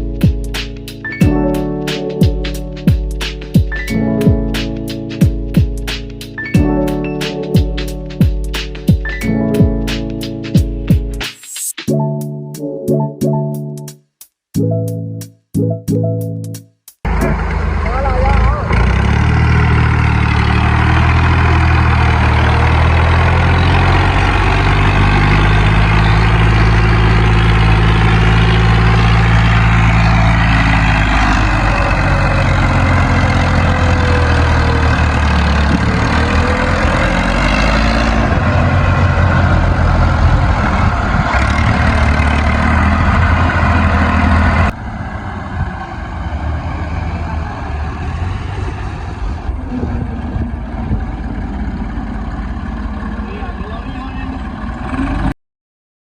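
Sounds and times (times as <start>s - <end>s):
tractor engine running: 17.0s - 55.3s.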